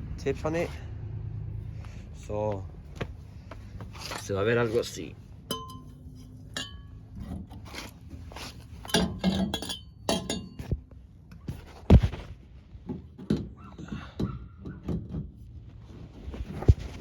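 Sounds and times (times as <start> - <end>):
metal exhaust tips clinking: 3.2 - 11.4.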